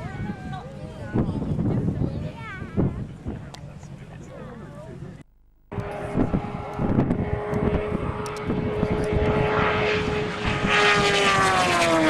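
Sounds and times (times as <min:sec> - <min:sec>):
engine drone passing by: 0:05.7 - 0:12.0.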